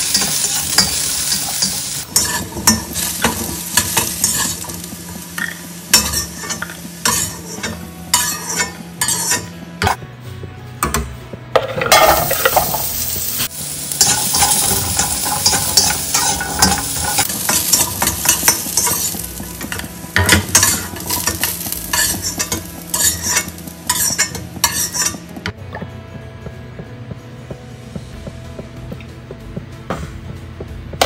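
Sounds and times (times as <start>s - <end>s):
metal spatula scraping a pan: 0.0s - 4.8s, 5.4s - 9.6s, 11.6s - 25.3s
vegetables sizzling in hot oil: 0.0s - 9.2s, 11.9s - 25.2s.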